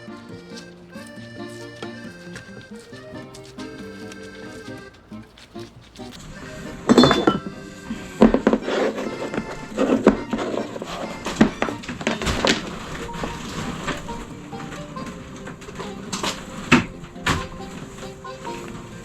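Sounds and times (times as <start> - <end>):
light background music: 0.0 - 19.0
dishes and utensils clinking: 5.3 - 7.8.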